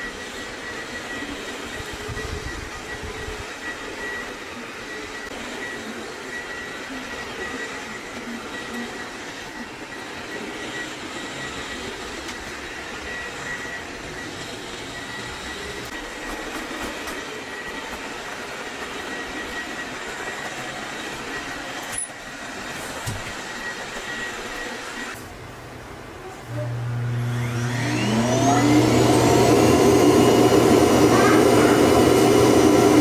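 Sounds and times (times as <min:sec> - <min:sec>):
thin high whine: 0:26.2 - 0:33.0
robot vacuum suction whir: 0:26.4 - 0:33.0.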